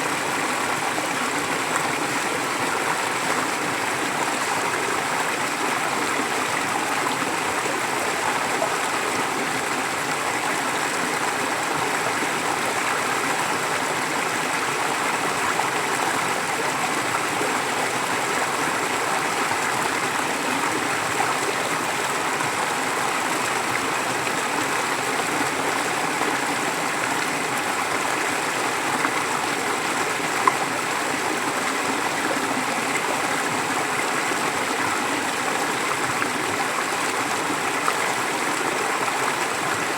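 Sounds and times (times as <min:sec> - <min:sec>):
stream gurgling over rocks: 0:00.0 - 0:39.9.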